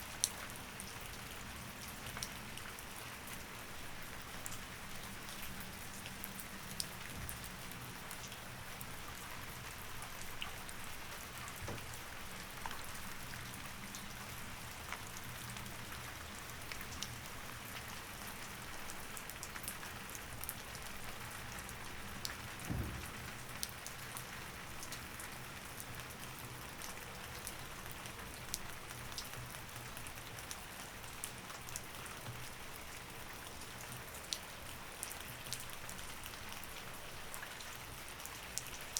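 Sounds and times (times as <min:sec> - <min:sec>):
steady rain: 0:00.0 - 0:38.9
dull thump: 0:22.7 - 0:23.4.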